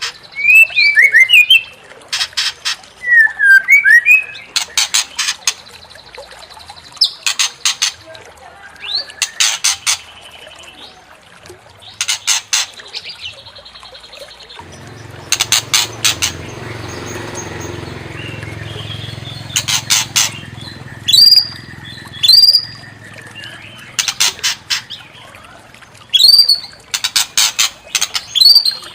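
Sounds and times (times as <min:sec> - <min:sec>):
bird chattering clicks: 0:00.0 - 0:05.8, 0:07.0 - 0:08.0, 0:08.8 - 0:10.2, 0:11.9 - 0:13.3, 0:14.6 - 0:25.2, 0:26.1 - 0:28.9
bird whistled notes: 0:00.3 - 0:01.7, 0:03.0 - 0:04.5, 0:15.3 - 0:23.8
buzzy bird trills: 0:12.0 - 0:28.9.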